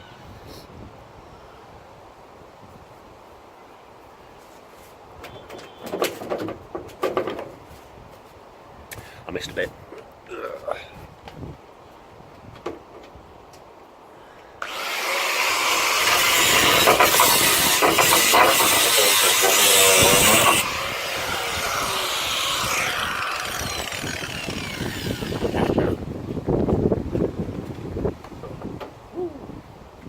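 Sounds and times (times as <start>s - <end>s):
power tool cutting sheet steel: 14.6s - 26.0s.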